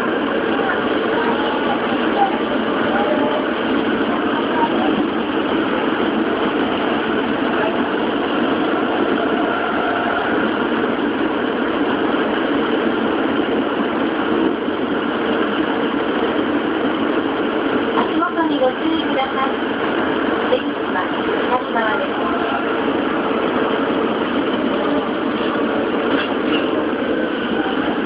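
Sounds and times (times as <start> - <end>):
subway train wheels on rails: 0.0 - 28.0.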